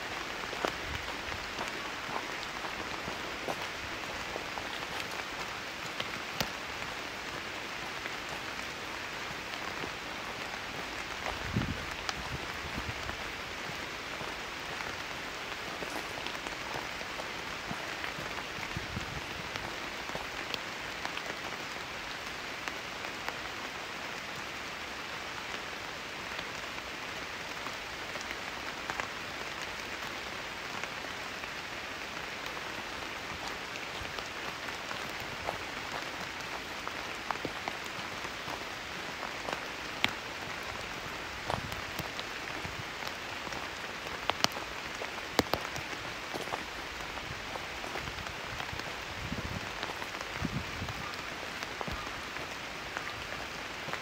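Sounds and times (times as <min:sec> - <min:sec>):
rain on foliage and gravel: 0:00.0 - 0:54.0
raindrop ticks: 0:00.1 - 0:18.8, 0:32.4 - 0:54.0.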